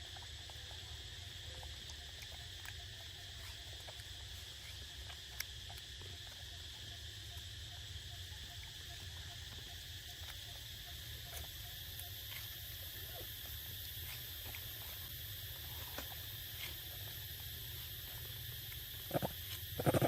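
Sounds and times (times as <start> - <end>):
insects droning: 0.0 - 20.0
faint ticks: 0.1 - 12.7.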